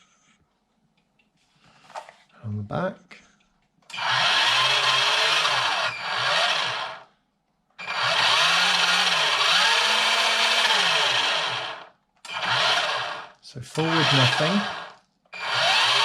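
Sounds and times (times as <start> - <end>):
electric motor and gearbox whirring: 3.9 - 7.1, 7.8 - 16.0.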